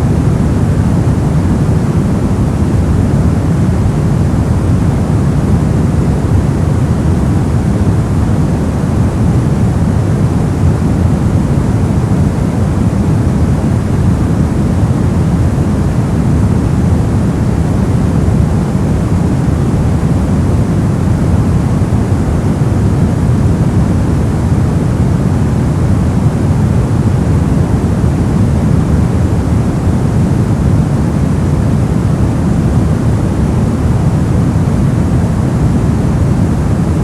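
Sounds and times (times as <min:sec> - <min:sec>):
deep rumbling noise machine hiss: 0:00.0 - 0:37.0.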